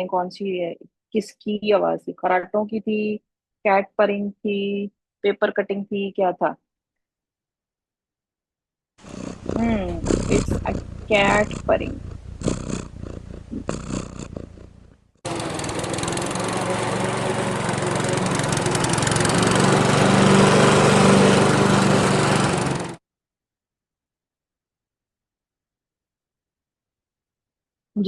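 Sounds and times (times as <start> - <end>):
lawn mower engine running: 14.7 - 23.0.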